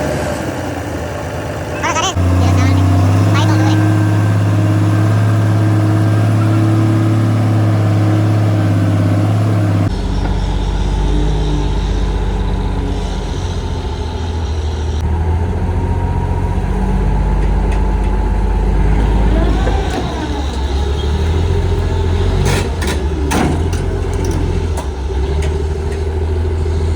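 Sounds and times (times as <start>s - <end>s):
bulldozer diesel engine running: 0.0s - 26.9s
deeper engine note: 0.9s - 26.9s.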